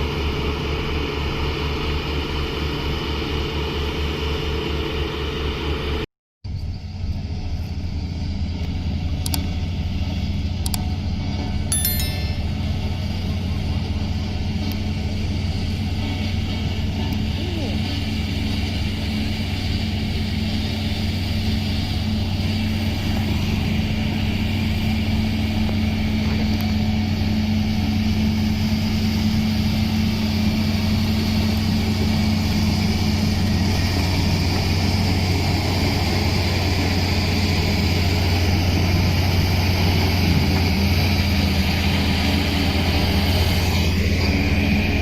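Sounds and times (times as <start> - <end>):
engine droning: 12.3 - 45.0.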